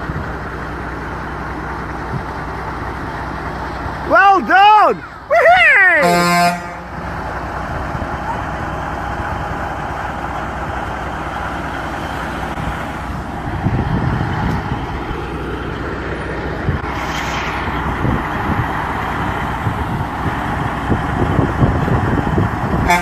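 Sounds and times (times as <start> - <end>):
heavy vehicle rumble: 0.0 - 23.0
brief hiss: 16.8 - 17.9.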